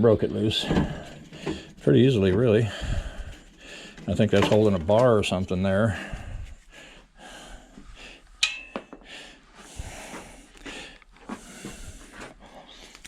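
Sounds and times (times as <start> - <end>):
sharp metallic clink: 8.4 - 8.9
tools handling metal parts: 8.4 - 9.0.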